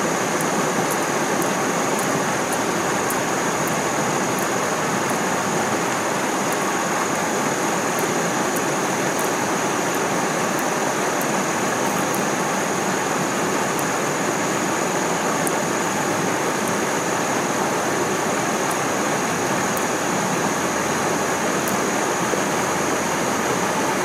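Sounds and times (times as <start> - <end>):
stream water rushing: 0.0 - 24.0
faint high ticks: 0.3 - 5.3, 6.4 - 7.2, 7.9 - 12.4, 15.4 - 15.6, 18.6 - 18.9, 19.6 - 20.0.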